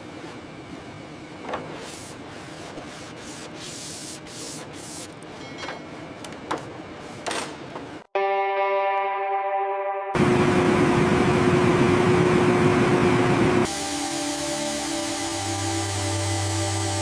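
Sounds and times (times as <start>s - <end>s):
rubbing strokes on a surface: 1.7s - 5.2s.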